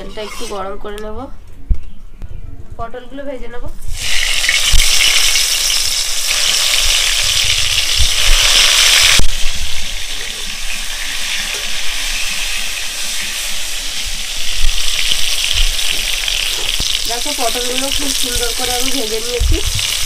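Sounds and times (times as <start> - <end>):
gourds sizzling in hot oil: 3.9 - 20.0.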